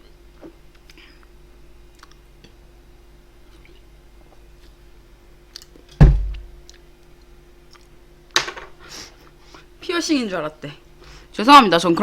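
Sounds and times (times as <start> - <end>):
chewing and eating clicks: 1.9 - 2.6, 5.5 - 5.9, 6.6 - 7.9
loud deep thump: 6.0 - 6.4.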